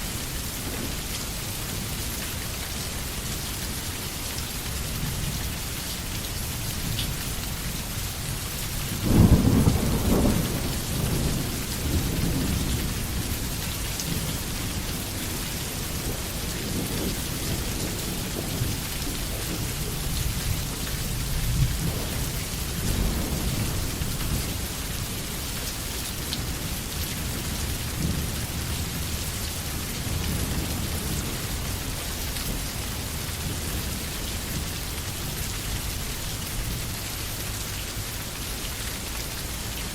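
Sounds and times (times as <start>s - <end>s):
heavy rain: 0.0s - 39.9s
thunder rumbling: 9.0s - 25.3s.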